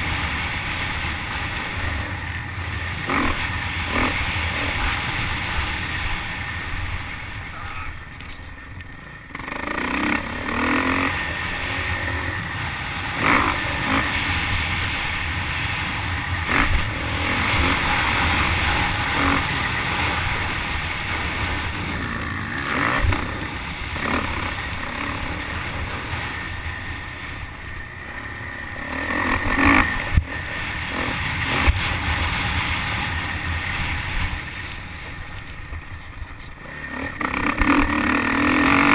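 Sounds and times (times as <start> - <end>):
dirt bike engine revving: 0.0 - 35.8, 36.4 - 38.9.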